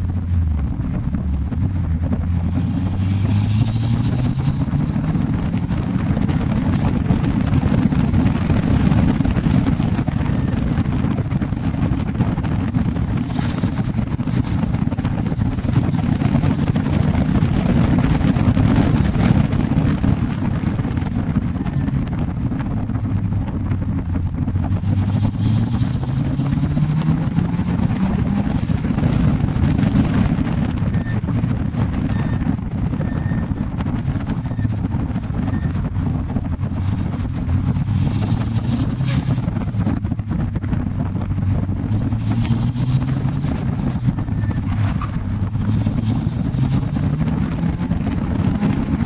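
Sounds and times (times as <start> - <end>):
car engine running hard: 0.0 - 49.0
wind buffeting on microphone: 0.0 - 49.0.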